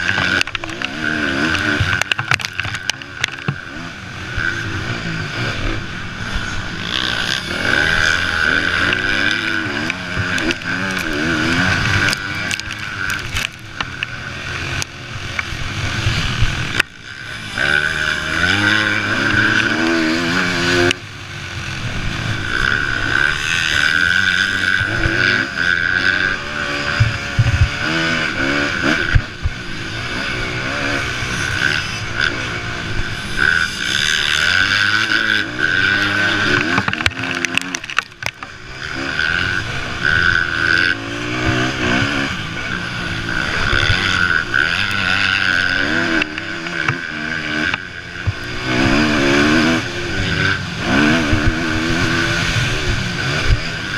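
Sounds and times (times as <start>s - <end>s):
motocross bike engines revving: 0.0s - 53.9s.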